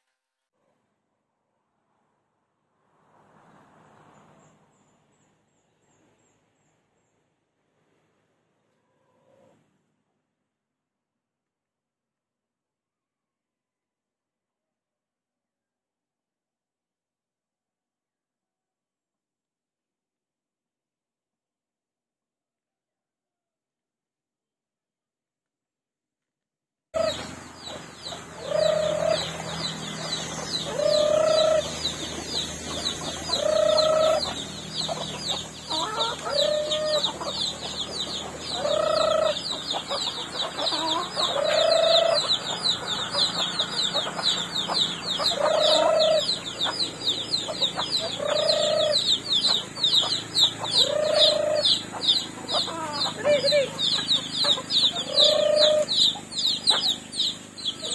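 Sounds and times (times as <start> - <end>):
chicken calling: 27.0 - 57.9.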